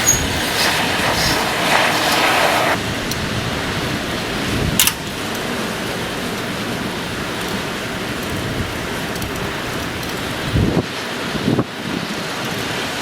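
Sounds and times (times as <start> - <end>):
wind on microphone: 0.0 - 12.3
sharp click: 4.8 - 5.0.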